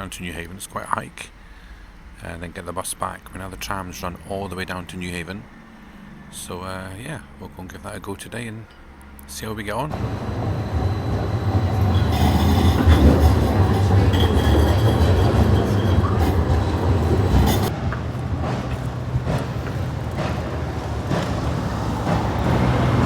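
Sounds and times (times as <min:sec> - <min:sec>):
train rumbling past: 0:00.0 - 0:23.0
thin high whine: 0:09.8 - 0:17.7.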